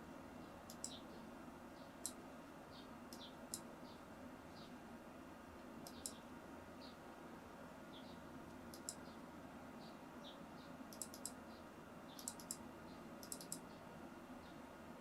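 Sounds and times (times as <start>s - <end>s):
faint steady hum: 0.0s - 15.0s
computer mouse clicking: 0.7s - 1.0s, 5.8s - 6.2s, 8.5s - 9.1s, 10.9s - 11.4s, 12.2s - 12.6s, 13.2s - 13.6s.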